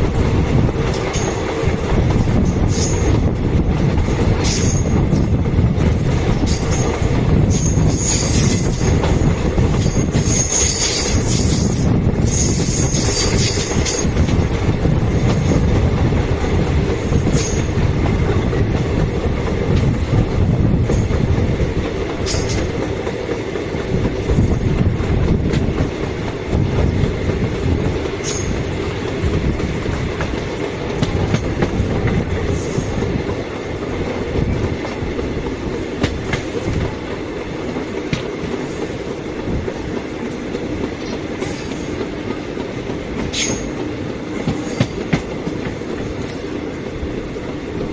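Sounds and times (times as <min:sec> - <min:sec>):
heavy train rumble: 0:00.0 - 0:47.9
wheel squeals: 0:07.5 - 0:09.0.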